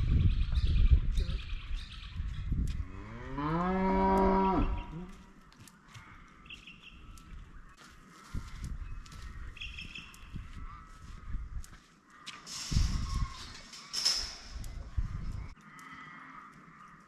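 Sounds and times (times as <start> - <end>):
cattle mooing: 2.8 - 5.2.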